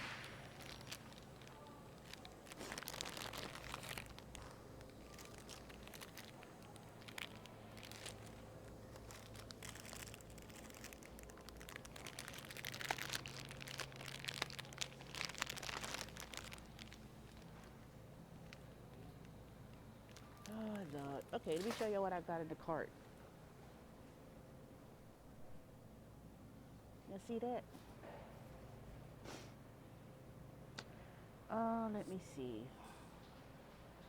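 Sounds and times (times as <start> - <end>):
plastic packaging crinkling: 0.0 - 22.0
low steady hum: 0.0 - 34.0.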